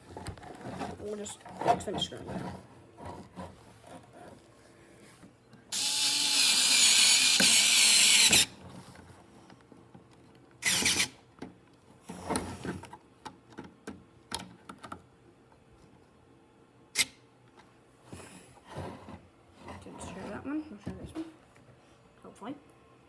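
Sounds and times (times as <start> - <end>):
electric screwdriver motor hum: 5.8 - 8.5.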